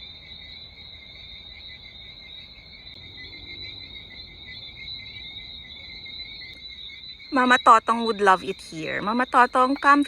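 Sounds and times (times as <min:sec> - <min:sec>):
insect chorus trilling: 0:00.0 - 0:10.0.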